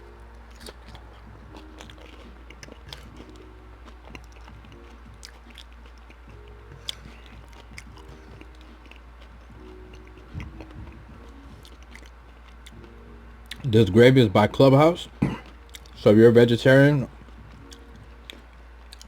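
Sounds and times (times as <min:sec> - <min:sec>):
low steady hum: 0:00.0 - 0:19.0
person chewing: 0:00.4 - 0:13.7, 0:15.1 - 0:16.0, 0:17.2 - 0:19.0
mouth clicks and crunches: 0:00.5 - 0:12.9, 0:15.1 - 0:16.1, 0:17.2 - 0:19.0.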